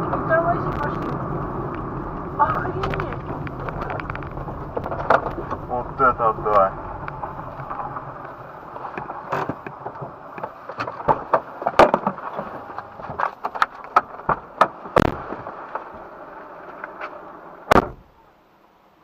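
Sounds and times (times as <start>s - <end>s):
steady background noise: 0.0s - 19.0s
sharp cracks and pops: 2.5s - 5.6s, 6.5s - 16.0s.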